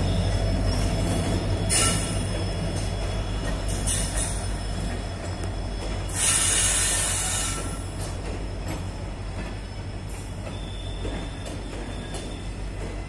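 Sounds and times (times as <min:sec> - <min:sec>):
high-pitched wheel squeal: 0:00.0 - 0:02.4
train coaches rumbling past: 0:00.0 - 0:13.0.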